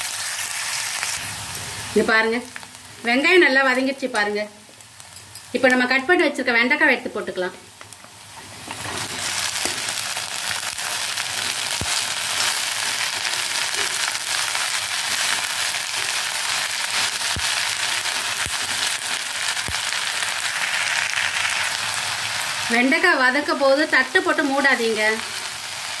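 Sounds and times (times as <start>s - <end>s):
okra sizzling in hot oil: 0.0s - 26.0s.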